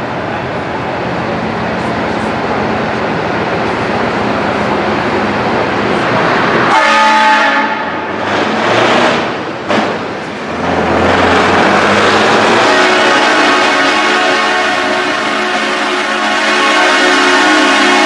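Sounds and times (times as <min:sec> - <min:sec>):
multi-tone air horn: 0:06.7 - 0:07.9, 0:12.6 - 0:18.0
truck engine passing: 0:07.7 - 0:15.8.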